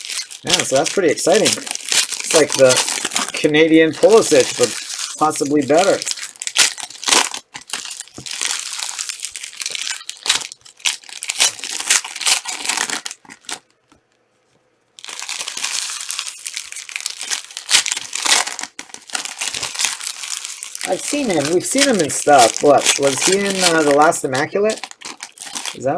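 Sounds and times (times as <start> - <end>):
plastic wrappers crinkling and tearing: 0.0 - 14.1, 15.0 - 25.9.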